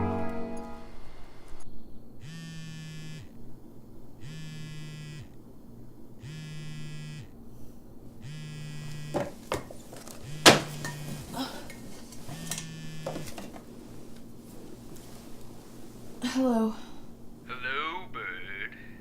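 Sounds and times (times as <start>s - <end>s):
phone vibrating: 2.2s - 3.4s, 4.2s - 5.4s, 6.2s - 7.4s, 8.2s - 9.4s, 10.2s - 11.3s, 12.3s - 13.4s.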